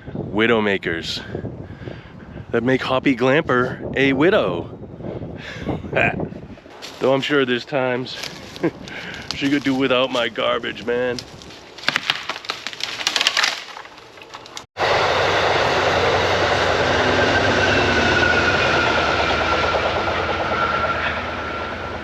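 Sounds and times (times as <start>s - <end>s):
train wheels rushing on rails: 14.8s - 22.0s.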